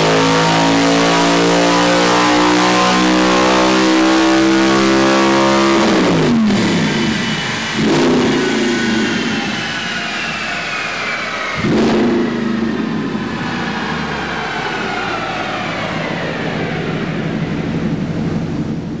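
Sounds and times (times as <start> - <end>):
car engine revving: 0.0 - 19.0
high whine falling in pitch: 4.3 - 19.0.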